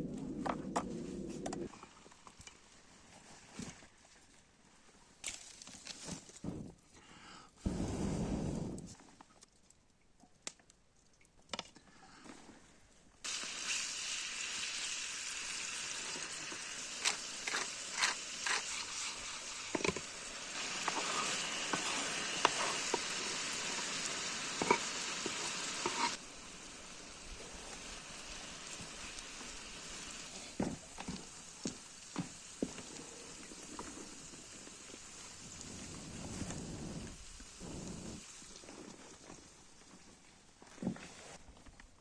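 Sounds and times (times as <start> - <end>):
food sizzling over campfire: 13.2 - 40.2.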